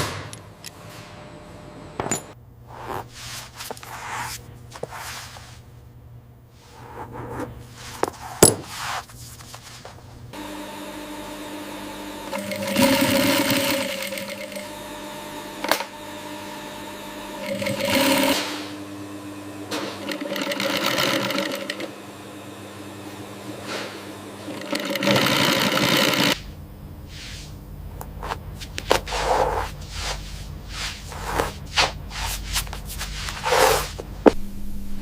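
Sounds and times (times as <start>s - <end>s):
steady machine hum: 0.0s - 35.0s
sewing machine stitching: 11.9s - 18.8s, 19.7s - 22.0s, 23.5s - 26.4s.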